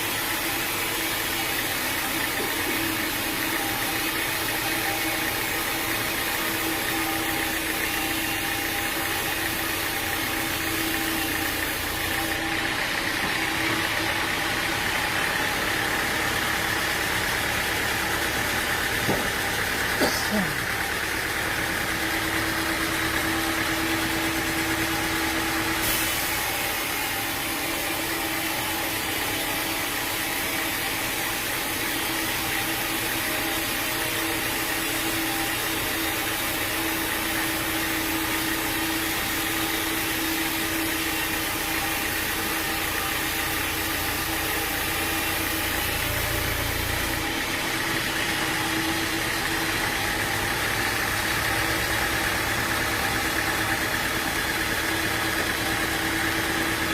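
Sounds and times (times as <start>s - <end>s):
sawmill engine humming: 0.0s - 56.9s
hiss: 23.7s - 47.1s.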